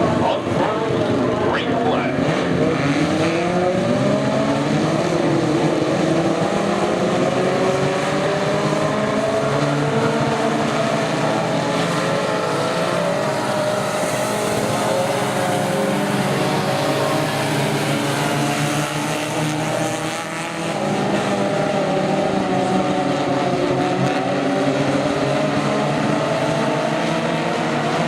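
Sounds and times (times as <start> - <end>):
racing truck engines revving: 0.0 - 28.0.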